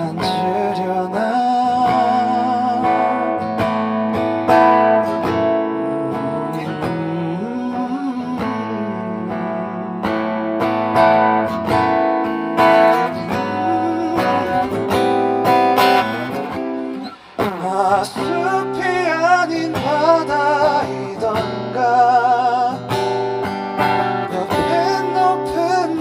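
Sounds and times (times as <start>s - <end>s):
acoustic guitar strumming chords: 0.0s - 26.0s.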